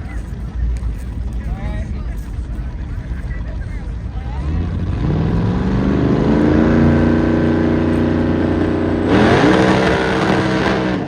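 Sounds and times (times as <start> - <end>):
vehicle engine revving: 4.1 - 11.0.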